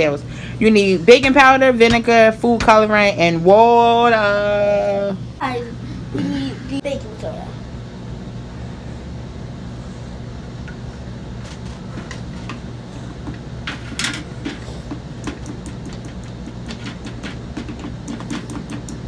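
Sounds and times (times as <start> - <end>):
steady low hum: 0.0 - 19.0
household items clicking and knocking: 11.4 - 19.0.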